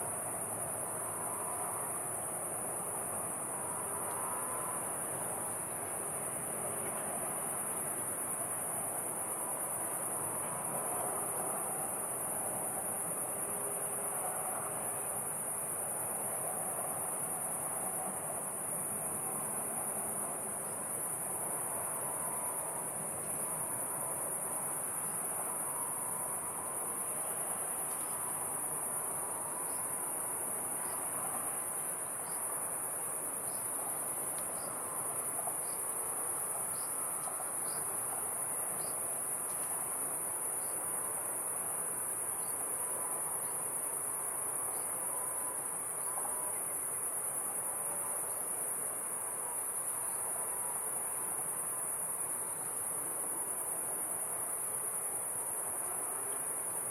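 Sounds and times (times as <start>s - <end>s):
high-pitched insect chorus: 0.0s - 56.9s.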